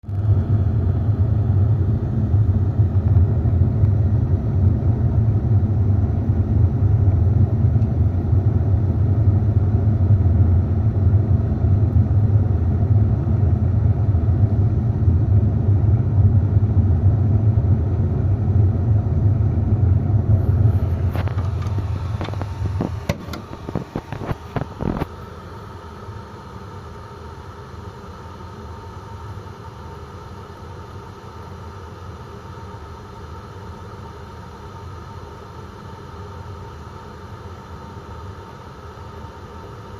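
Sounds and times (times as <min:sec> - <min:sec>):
boiler draft fan rumbling: 0:19.3 - 0:25.1.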